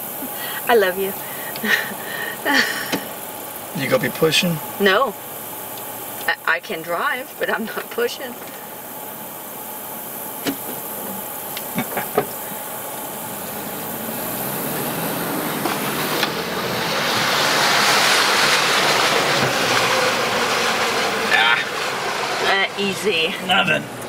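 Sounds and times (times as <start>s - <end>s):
vehicle engine: 0.0s - 24.0s
water hissing and spraying: 0.0s - 24.0s.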